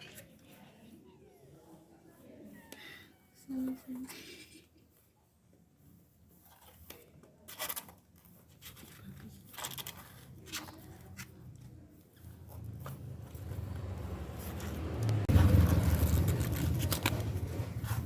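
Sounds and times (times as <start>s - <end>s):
rustling and scratching: 3.5s - 18.0s
low rumble: 13.3s - 18.0s.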